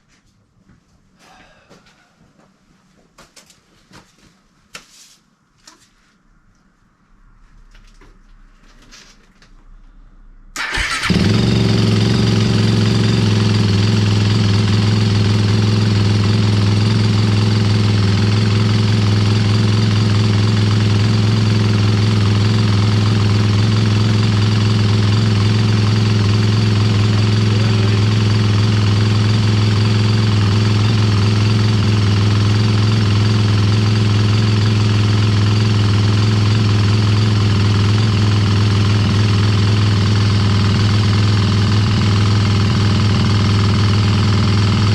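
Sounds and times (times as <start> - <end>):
motorcycle engine starting and idling: 10.5 - 44.9.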